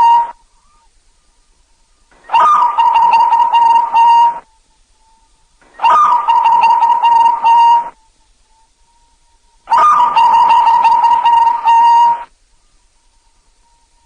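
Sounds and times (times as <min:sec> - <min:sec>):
dove cooing: 0:00.0 - 0:00.9, 0:02.1 - 0:04.5, 0:05.6 - 0:08.1, 0:09.7 - 0:12.3.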